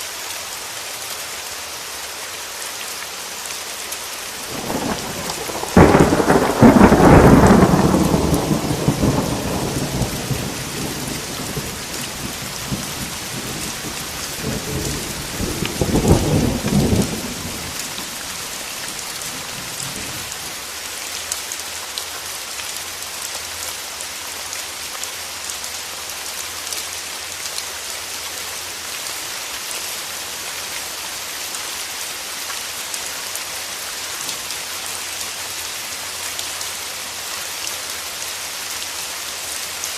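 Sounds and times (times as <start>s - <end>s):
steady rain: 0.0s - 39.9s
thunder clap and rumble: 4.4s - 20.3s.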